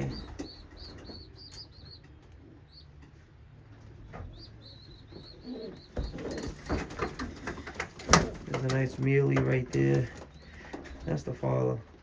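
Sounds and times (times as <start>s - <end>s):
pigeon squabs peeping: 0.0s - 3.1s, 3.9s - 8.8s
low pigeon coo: 5.2s - 6.6s.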